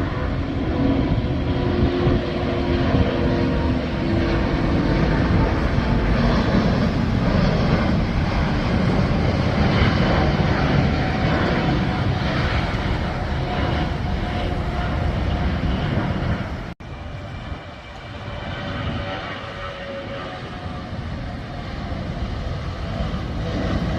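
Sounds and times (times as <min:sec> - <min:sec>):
jet engine roaring: 0:00.0 - 0:23.9.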